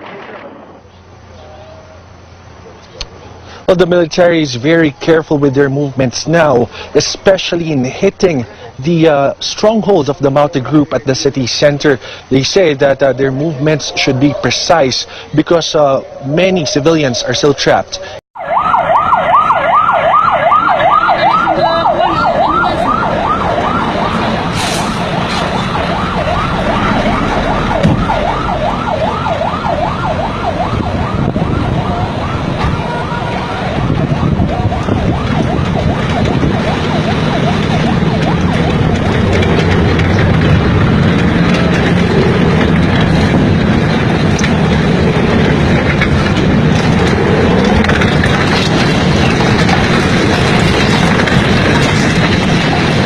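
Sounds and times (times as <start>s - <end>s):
vehicle engine rumble: 0.0s - 53.0s
vehicle siren yelping: 12.9s - 53.0s.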